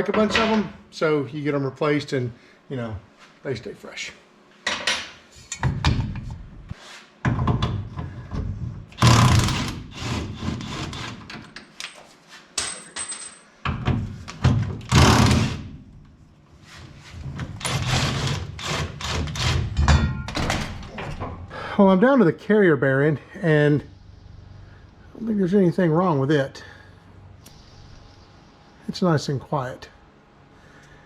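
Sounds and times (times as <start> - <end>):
rasping bursts: 14.9 - 15.7, 17.6 - 19.7
metallic knocks and clanks: 19.7 - 21.5.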